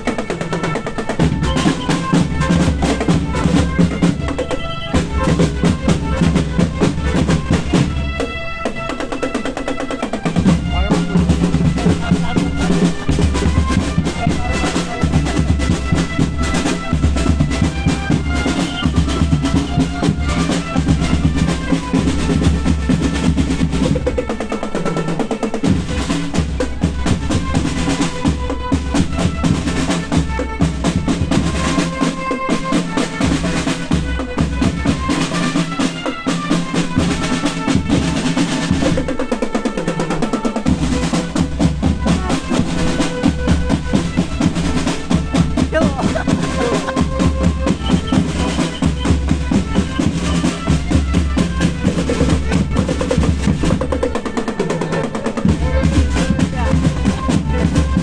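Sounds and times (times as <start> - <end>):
brass playing a melody: 0.0 - 58.0
snare drum rolls: 0.0 - 58.0
bass drum beats: 40.8 - 54.0, 55.4 - 58.0.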